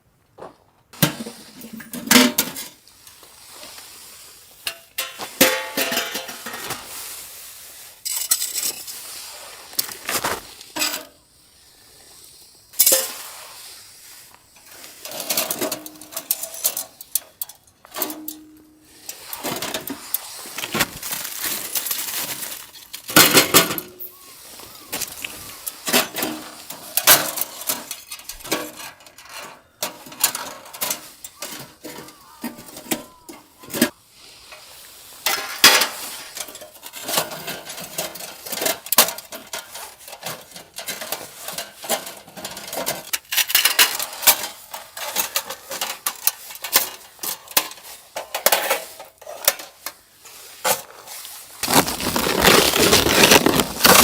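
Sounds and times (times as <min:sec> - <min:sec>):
utensils clinking against dishes: 0:04.7 - 0:06.9, 0:08.0 - 0:09.0, 0:12.8 - 0:13.2.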